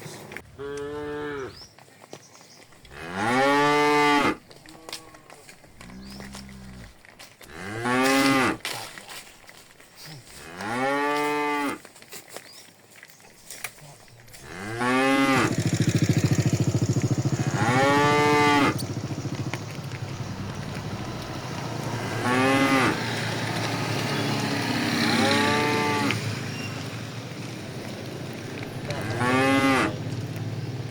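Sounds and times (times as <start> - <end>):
cattle mooing: 0.6 - 1.6, 2.9 - 8.6, 10.3 - 11.8, 14.3 - 15.6, 17.2 - 23.8, 24.6 - 26.2, 28.6 - 30.0
steady low rumble: 15.8 - 22.4.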